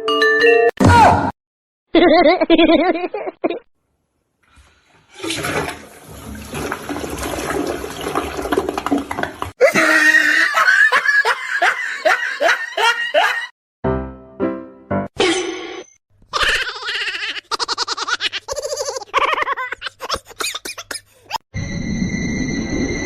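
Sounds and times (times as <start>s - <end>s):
person laughing: 1.9s - 3.7s, 9.6s - 13.5s, 16.3s - 21.4s
water rushing: 5.1s - 9.5s.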